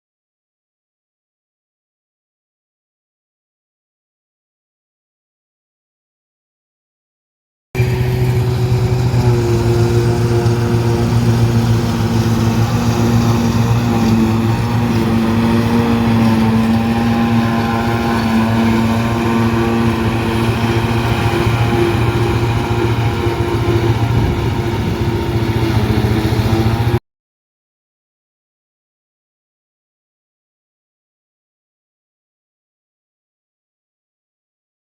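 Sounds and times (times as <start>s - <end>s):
tractor engine running: 7.8s - 27.0s.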